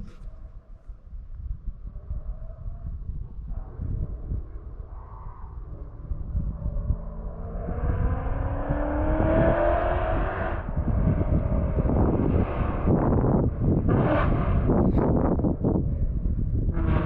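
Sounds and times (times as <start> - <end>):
exhaust crackling: 4.6 - 17.0
car engine accelerating hard: 5.4 - 15.9, 16.5 - 17.0.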